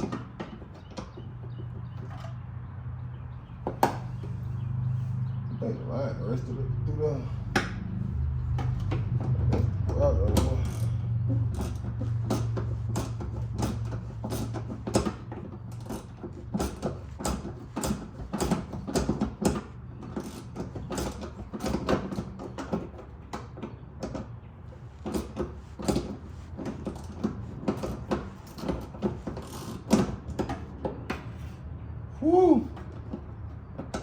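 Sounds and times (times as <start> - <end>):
tools clicking on metal parts: 8.5 - 24.4.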